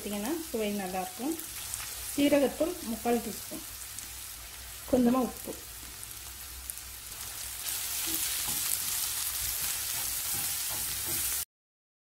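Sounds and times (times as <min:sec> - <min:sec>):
food sizzling in hot oil: 0:00.0 - 0:11.5
wooden spatula scraping and clicking: 0:08.0 - 0:11.4.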